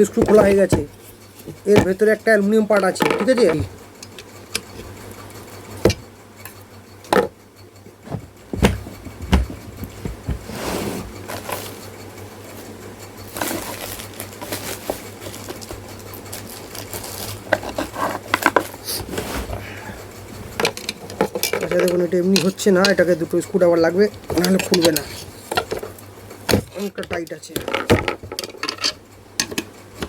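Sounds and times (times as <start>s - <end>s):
metal clinks and knocks: 26.6s - 29.7s.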